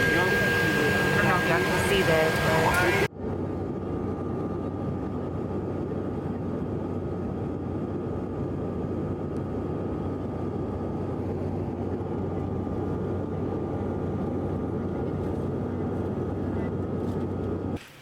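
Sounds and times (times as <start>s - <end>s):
faint high whine: 0.0s - 6.1s
airliner cabin drone: 0.0s - 17.9s.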